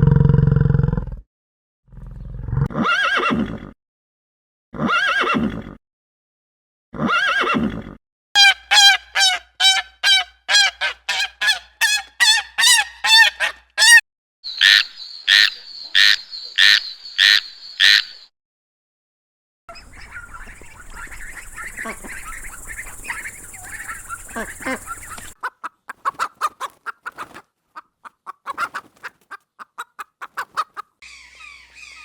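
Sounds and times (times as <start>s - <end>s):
animal honking calls: 8.4s - 14.0s
animals chattering: 19.7s - 32.0s
loud animal calls: 21.0s - 25.4s, 31.0s - 32.0s.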